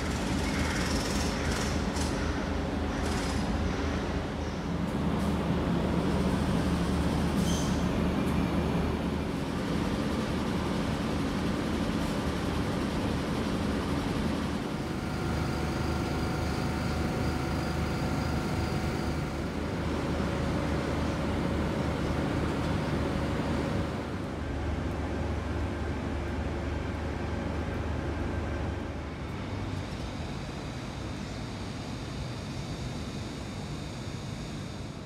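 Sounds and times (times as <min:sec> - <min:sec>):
train mechanical drone: 0:00.0 - 0:35.0.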